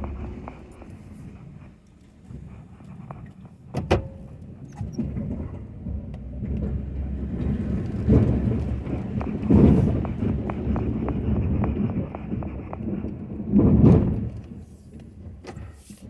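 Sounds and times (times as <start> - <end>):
pickup engine rumbling: 0.0 - 16.0
sharp clunk: 3.8 - 4.3.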